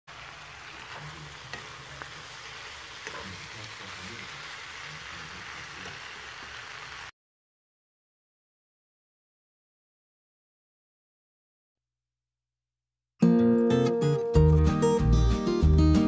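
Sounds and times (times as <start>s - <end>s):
food sizzling in a pan: 0.1s - 7.1s.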